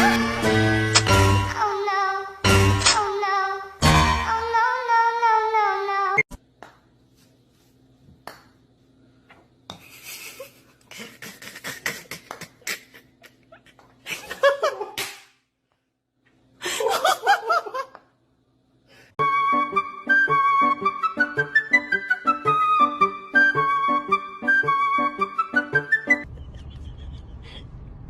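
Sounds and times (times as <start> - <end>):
laughter: 9.8 - 15.0, 16.6 - 18.1, 26.2 - 27.8.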